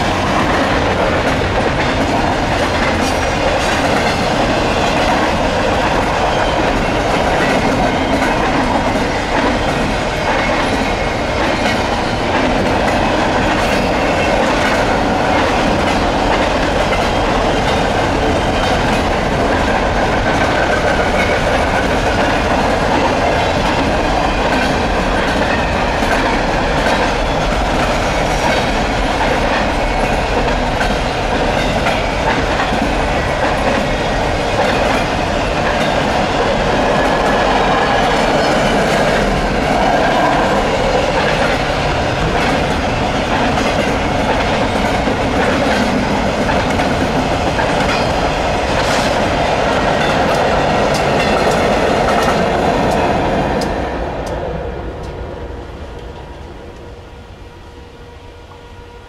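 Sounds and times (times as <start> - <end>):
train wheels rolling on rail: 0.0 - 59.0.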